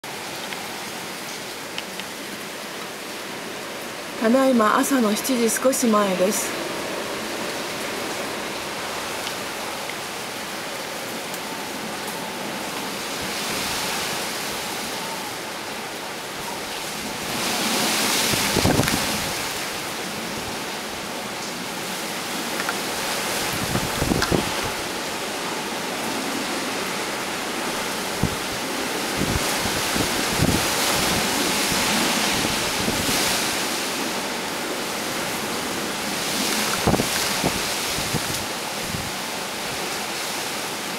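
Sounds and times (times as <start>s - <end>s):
driving rain: 0.0s - 40.9s
wind gusting: 2.6s - 39.8s
wind buffeting microphone: 16.9s - 20.6s, 22.9s - 25.1s, 26.4s - 33.6s, 36.0s - 39.8s.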